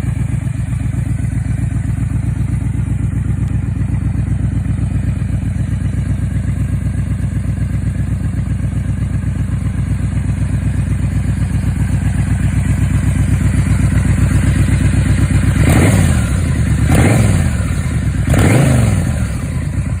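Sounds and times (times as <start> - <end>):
motorcycle engine idling: 0.0 - 20.0
engine revving: 15.5 - 20.0.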